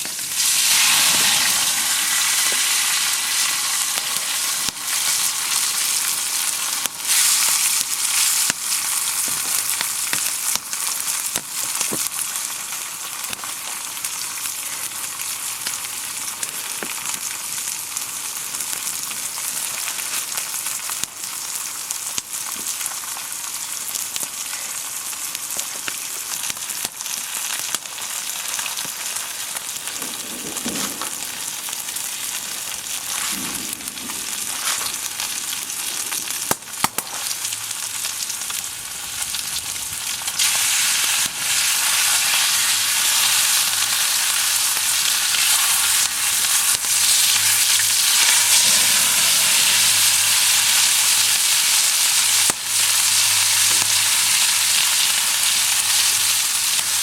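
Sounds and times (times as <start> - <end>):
food frying and sizzling: 0.0 - 57.0.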